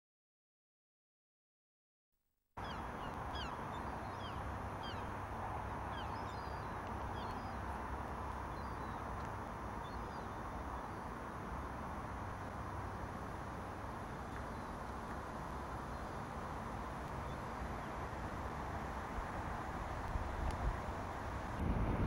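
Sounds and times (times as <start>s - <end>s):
outdoor rumble and hiss: 2.6s - 22.0s.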